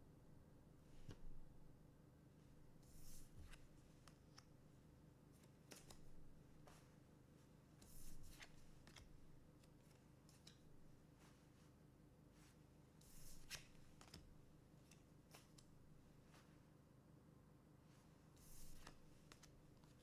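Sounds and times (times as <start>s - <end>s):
low room hum: 0.0s - 20.0s
cards sliding swishes: 2.9s - 4.5s, 7.8s - 9.2s, 12.4s - 14.3s, 18.4s - 20.0s
cards clicking: 18.6s - 20.0s.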